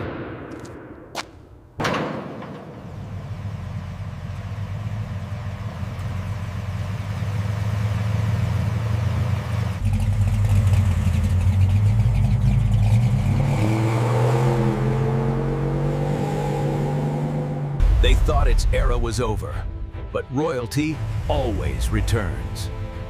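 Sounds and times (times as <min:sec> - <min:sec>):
car engine running: 0:02.8 - 0:15.8.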